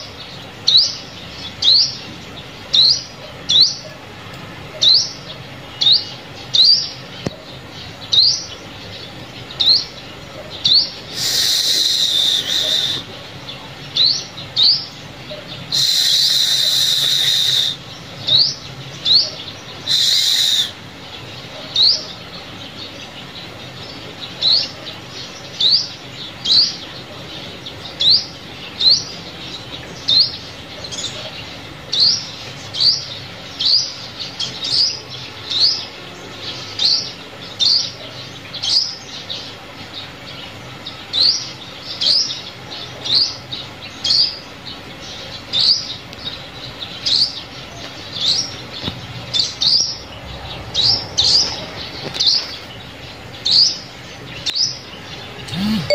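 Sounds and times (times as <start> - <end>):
buzzy bird trills: 10.6 - 13.2, 55.4 - 55.9
sunbird rising call notes: 11.1 - 13.1, 15.7 - 18.5, 19.8 - 20.8, 55.4 - 55.9.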